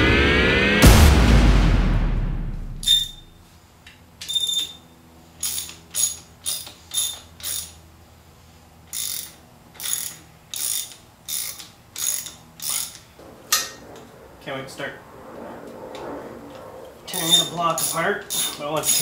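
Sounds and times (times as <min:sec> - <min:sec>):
ratchet wrench clicking: 0:04.2 - 0:04.8, 0:05.4 - 0:07.8, 0:08.9 - 0:13.1, 0:17.2 - 0:19.0.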